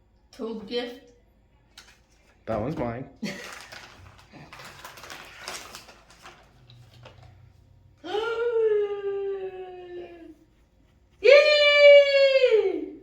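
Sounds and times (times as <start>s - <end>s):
packaging rustling and tearing: 3.2s - 7.4s.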